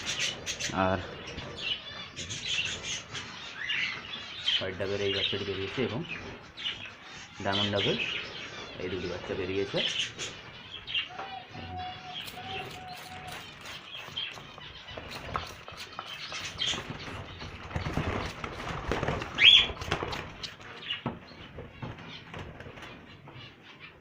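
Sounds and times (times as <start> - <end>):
birds chirping and twittering: 0.0 - 24.0
wings flapping: 12.3 - 21.0.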